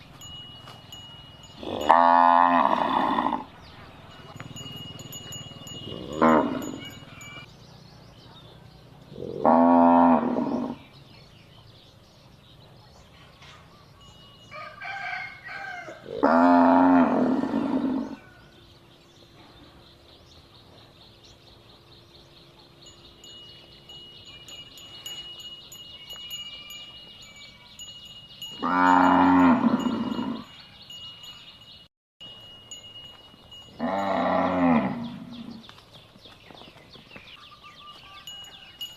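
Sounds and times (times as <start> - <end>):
cattle mooing: 1.6 - 3.5, 5.8 - 7.3, 9.2 - 10.8, 15.8 - 18.2, 33.8 - 35.6.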